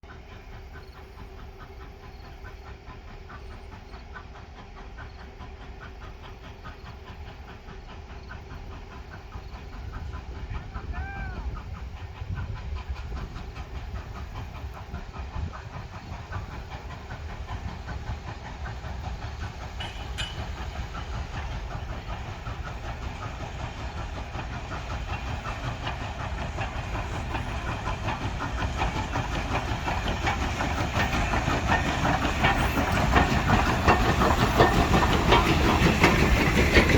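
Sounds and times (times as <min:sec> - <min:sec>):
steam hiss: 0:00.1 - 0:36.9
train wheels clattering on rails: 0:00.1 - 0:36.9.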